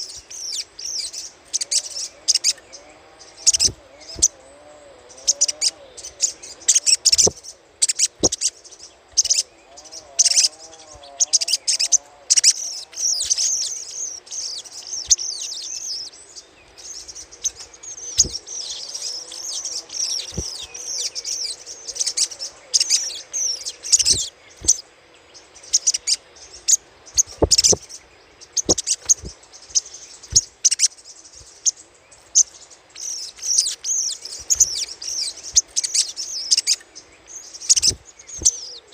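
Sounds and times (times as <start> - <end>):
bird chattering calls: 3.3 - 4.4, 5.1 - 8.6, 18.1 - 21.1, 22.8 - 24.8, 27.2 - 27.9, 28.6 - 30.9, 33.0 - 36.8, 37.6 - 38.9.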